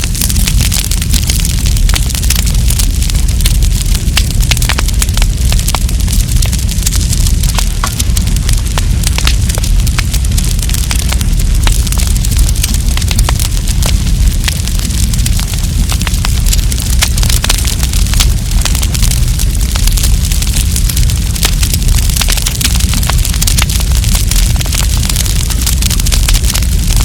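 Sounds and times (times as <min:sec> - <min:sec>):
wood campfire crackling: 0:00.0 - 0:27.0.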